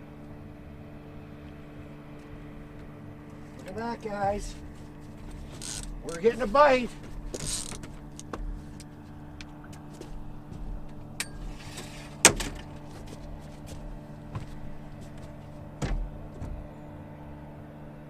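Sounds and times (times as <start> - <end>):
boat motor humming: 0.0 - 18.0
sharp clicks and knocks: 7.0 - 10.2, 13.8 - 16.7.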